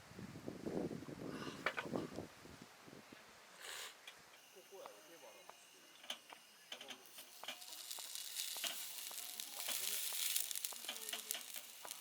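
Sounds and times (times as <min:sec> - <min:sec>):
food sizzling in a pan: 0:06.5 - 0:12.0.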